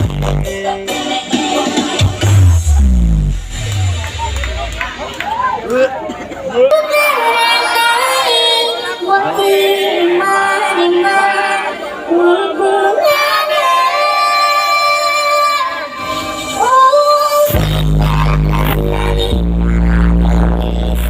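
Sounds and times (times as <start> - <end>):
heavy bass beat: 0.0 - 6.5, 17.5 - 21.0
song with female vocal: 6.6 - 21.0.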